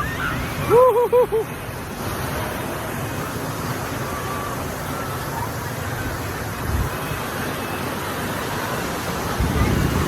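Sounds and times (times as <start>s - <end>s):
wind buffeting microphone: 8.3s - 10.0s.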